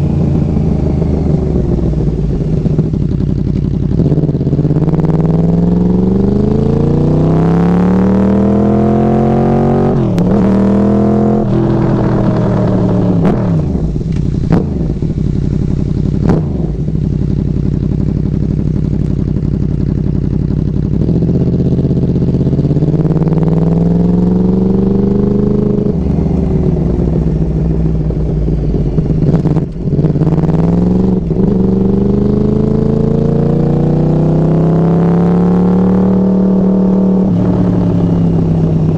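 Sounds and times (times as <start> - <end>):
motorcycle engine revving: 0.0 - 38.9
exhaust cracks: 11.4 - 17.7, 25.9 - 31.7.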